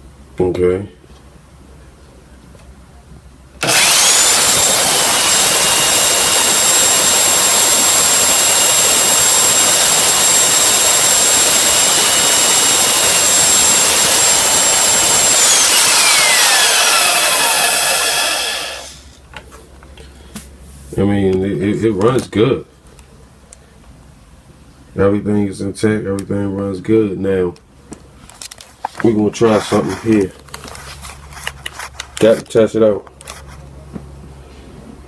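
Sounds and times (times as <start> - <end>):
electric drill whining: 3.6 - 19.1.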